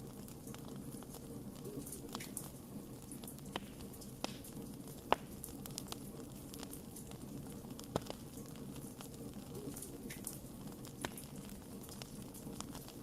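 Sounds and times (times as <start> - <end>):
campfire crackling: 0.0 - 13.0
sharp pops of fire: 0.0 - 13.0.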